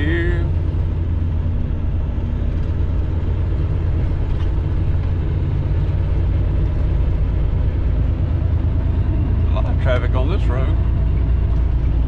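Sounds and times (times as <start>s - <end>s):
diesel truck engine rumble: 0.0s - 12.0s
road noise: 0.0s - 12.0s.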